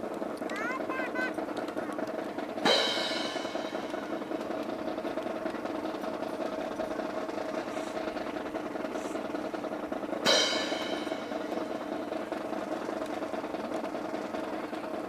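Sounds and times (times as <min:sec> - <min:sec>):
snare drum roll: 0:00.4 - 0:15.0
cymbal crash: 0:02.6 - 0:05.1, 0:10.2 - 0:12.9.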